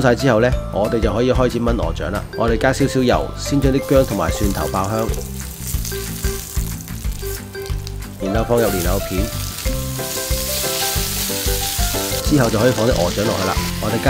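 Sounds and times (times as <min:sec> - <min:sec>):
food sizzling in oil in a wok: 0:03.8 - 0:14.0
spatula scraping a wok: 0:08.7 - 0:14.0.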